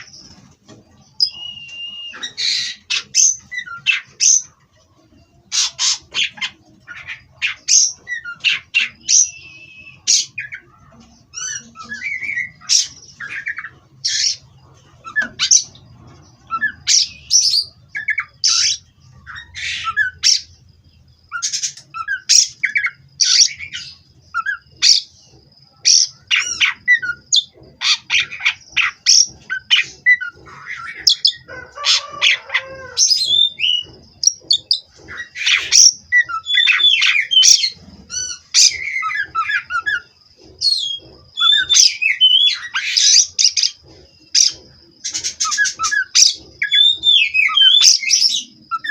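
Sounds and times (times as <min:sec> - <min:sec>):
bird singing varied whistles: 0:01.2 - 0:04.4, 0:07.7 - 0:10.6.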